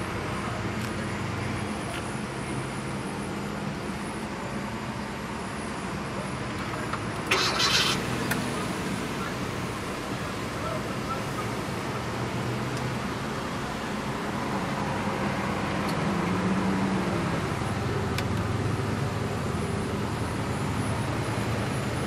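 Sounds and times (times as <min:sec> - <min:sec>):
car engine cranking: 0:06.6 - 0:09.8.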